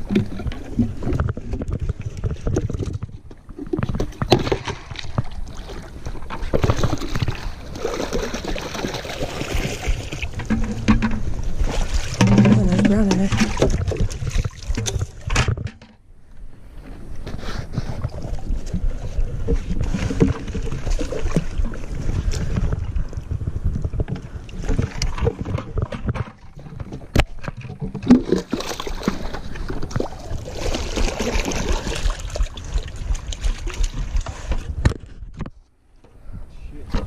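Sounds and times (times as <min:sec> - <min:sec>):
low rumble of camera moving: 0:00.0 - 0:08.4, 0:09.0 - 0:37.0
water splashing around legs: 0:27.4 - 0:34.5.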